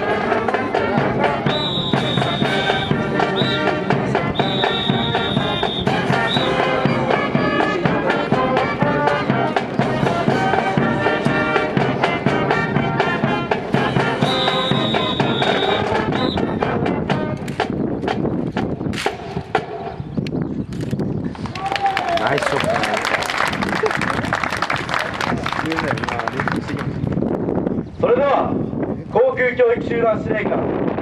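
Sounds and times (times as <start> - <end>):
brass band music: 0.0 - 17.8.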